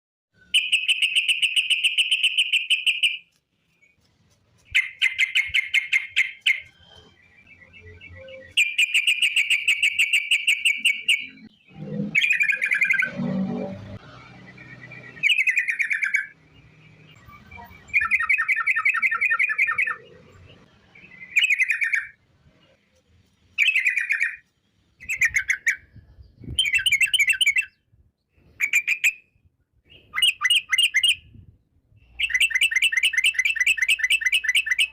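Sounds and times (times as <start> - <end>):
bird singing a rolling trill: 4.6 - 22.8, 23.5 - 27.9, 32.0 - 34.9.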